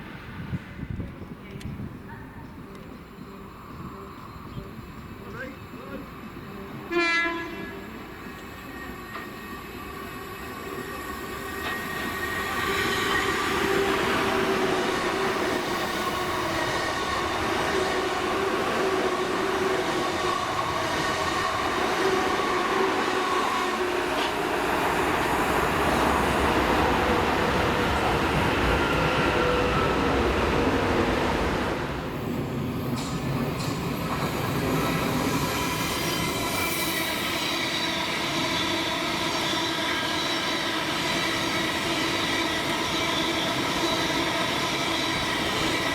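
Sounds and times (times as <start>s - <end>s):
train passing with whining tones: 0.0s - 45.9s
train horn blast: 6.8s - 7.9s.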